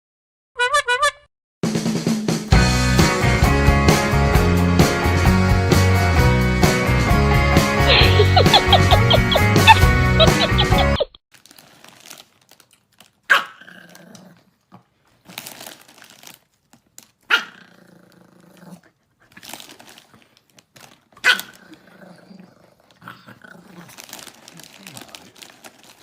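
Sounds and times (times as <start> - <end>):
dog barking: 13.3 - 13.6, 17.3 - 17.6, 21.2 - 21.5.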